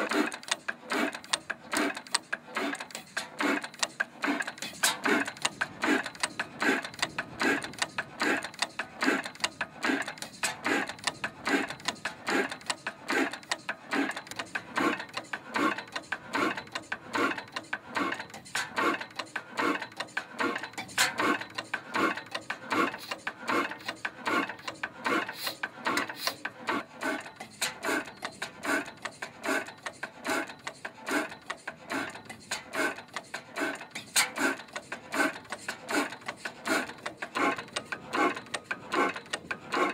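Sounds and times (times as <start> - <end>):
hot-bulb engine running slowly: 0.0 - 39.9.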